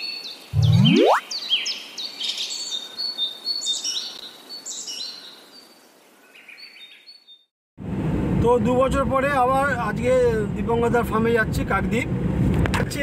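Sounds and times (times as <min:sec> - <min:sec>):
birds chirping: 0:00.0 - 0:07.4.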